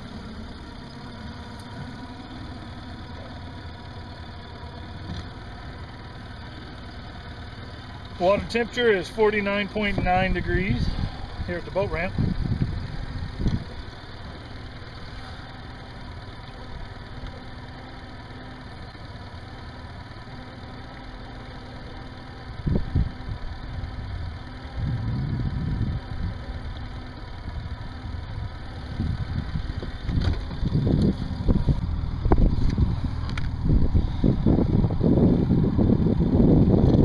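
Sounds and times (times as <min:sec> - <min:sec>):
outboard motor idling: 0:00.0 - 0:37.0
uneven low rumbling: 0:07.9 - 0:17.5, 0:22.5 - 0:37.0.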